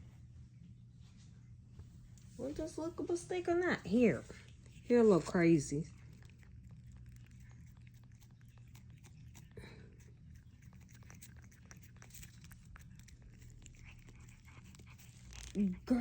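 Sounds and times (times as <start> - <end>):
cat licking and chewing: 3.9 - 16.0.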